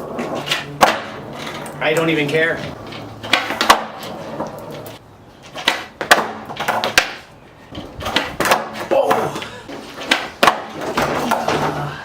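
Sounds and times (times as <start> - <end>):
skateboard knocking on ground: 0.1 - 1.8, 3.2 - 7.3, 8.0 - 11.8.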